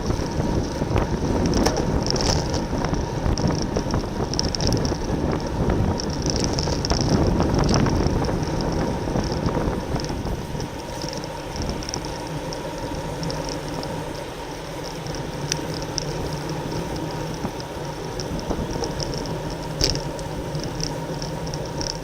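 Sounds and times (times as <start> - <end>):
bicycle tyres and drivetrain whirring: 0.0 - 22.0
faint ticks: 0.0 - 22.0
wind rushing over microphone: 0.0 - 22.0.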